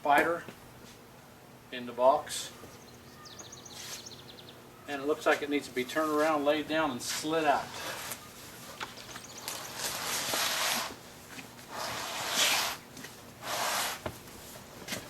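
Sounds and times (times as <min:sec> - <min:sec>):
cardboard box scraping: 0:09.6 - 0:11.0, 0:11.7 - 0:12.8.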